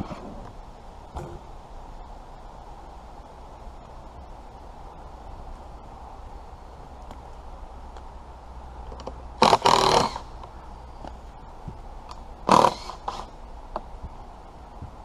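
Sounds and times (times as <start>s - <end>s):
harsh animal calls: 9.4s - 10.4s, 12.5s - 13.3s.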